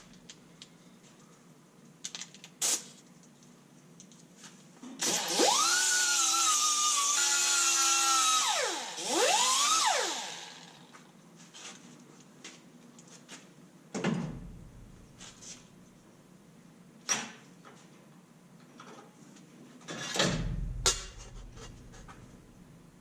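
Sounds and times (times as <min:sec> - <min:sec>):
power drill whining: 0:05.0 - 0:10.9.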